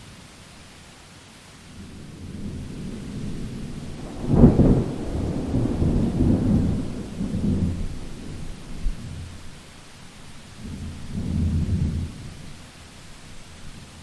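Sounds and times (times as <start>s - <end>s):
steady rain: 0.0s - 14.0s
thunder clap and rumble: 2.0s - 9.7s, 10.6s - 12.4s.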